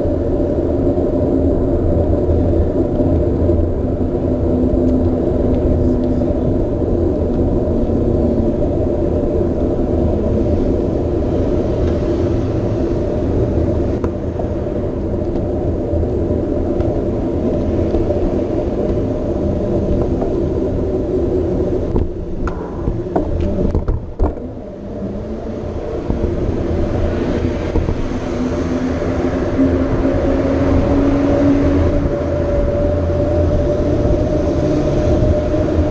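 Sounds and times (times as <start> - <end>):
bike tyre noise: 0.0 - 35.9
wind buffeting microphone: 0.0 - 35.9.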